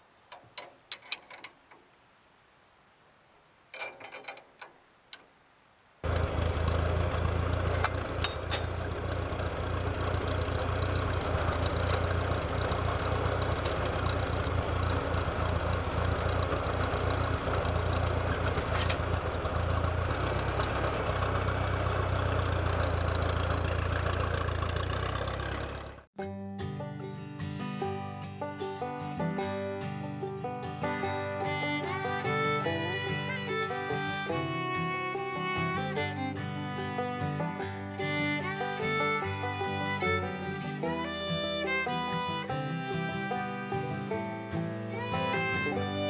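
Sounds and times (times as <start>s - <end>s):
tractor engine running: 3.8s - 5.2s, 6.0s - 26.2s, 30.9s - 46.0s
banjo and guitar music: 6.0s - 46.0s.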